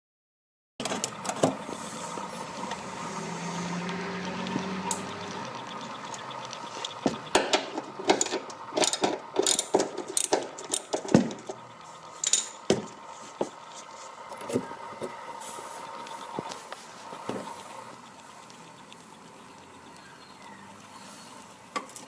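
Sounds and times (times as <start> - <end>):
wrench clicking on bolts: 6.8 - 11.1.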